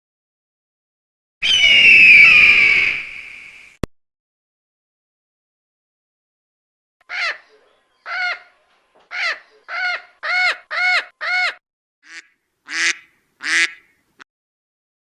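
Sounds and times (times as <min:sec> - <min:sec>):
bird honking calls: 0:07.1 - 0:14.0.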